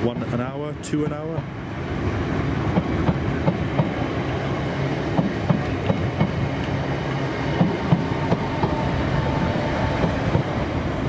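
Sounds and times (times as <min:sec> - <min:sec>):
train rumbling past: 0:00.0 - 0:11.0
wheels clickety-clack: 0:05.1 - 0:06.8, 0:07.5 - 0:08.8.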